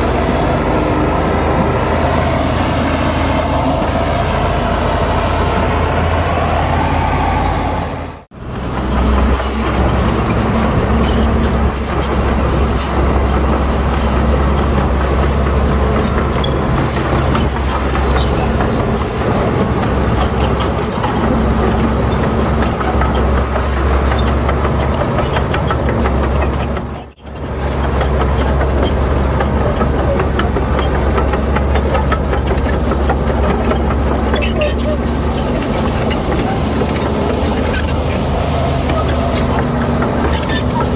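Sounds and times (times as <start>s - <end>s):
diesel engine drone: 0.0s - 40.9s
metallic clanks and rattles: 8.7s - 40.9s.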